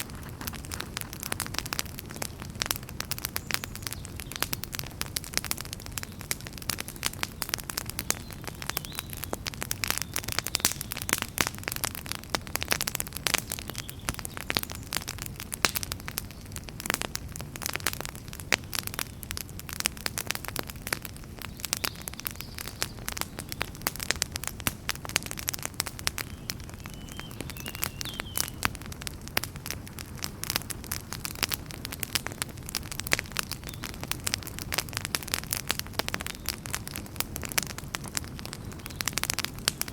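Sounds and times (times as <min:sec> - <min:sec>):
fire crackling: 0:00.0 - 0:39.9
low rumble of flames: 0:00.0 - 0:39.9.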